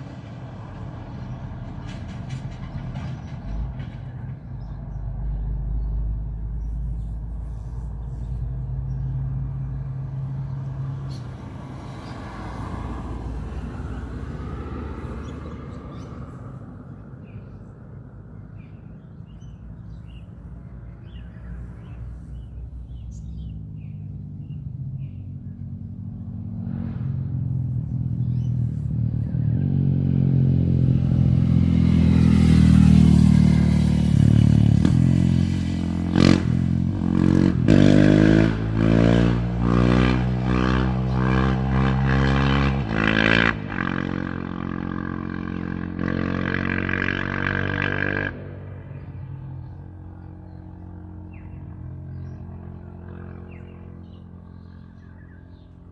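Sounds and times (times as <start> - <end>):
dirt bike engine revving: 29.3 - 48.5.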